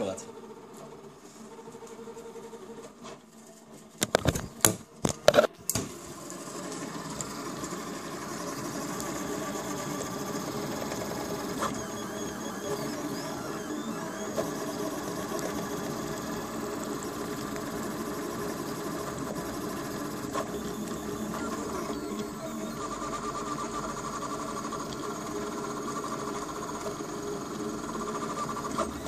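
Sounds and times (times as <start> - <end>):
stepper motors buzzing and whirring: 0.0 - 29.0.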